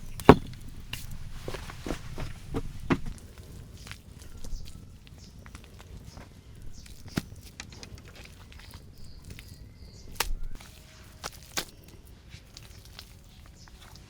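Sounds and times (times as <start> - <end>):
sharp knocks and clicks: 0.0 - 3.2.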